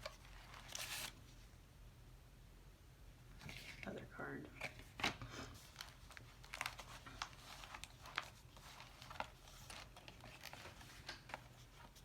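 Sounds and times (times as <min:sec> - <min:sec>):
paper rustling and crinkling: 0:00.0 - 0:01.4, 0:04.6 - 0:12.0.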